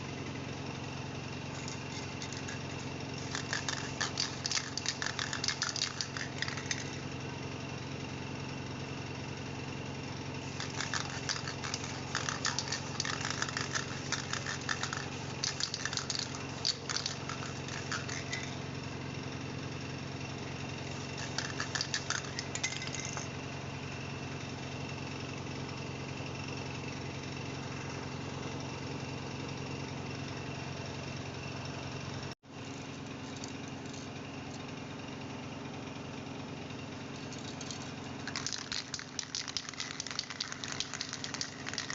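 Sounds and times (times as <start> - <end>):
steady mechanical hum: 0.0 - 41.9
rapid scratching strokes: 1.6 - 7.0, 10.4 - 18.6, 20.9 - 23.0, 38.3 - 41.9.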